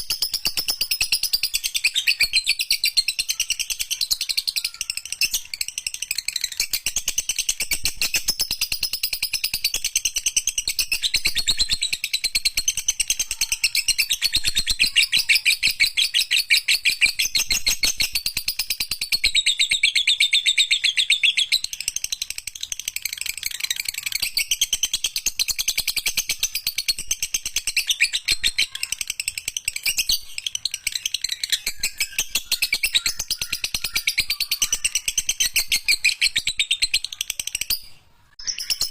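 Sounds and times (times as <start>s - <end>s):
lovebird chattering: 0.0s - 38.9s.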